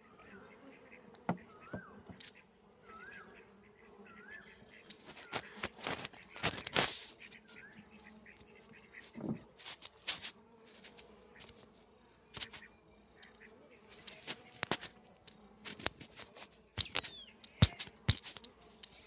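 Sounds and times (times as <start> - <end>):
honeybees buzzing: 0.0 - 19.0
hive clicks and knocks: 1.1 - 2.4, 4.8 - 7.6, 12.3 - 13.4, 14.0 - 19.0.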